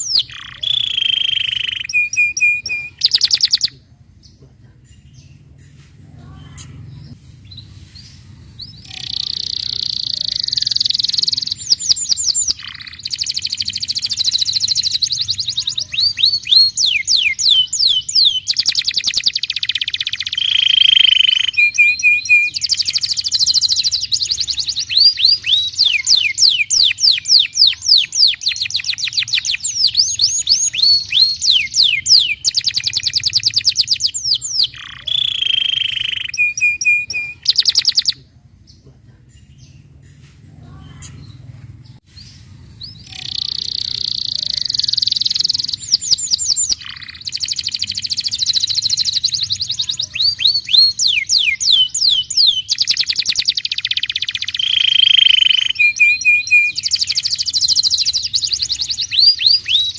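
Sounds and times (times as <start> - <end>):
canary singing trills: 0.0 - 4.4, 6.2 - 38.8, 40.7 - 59.9.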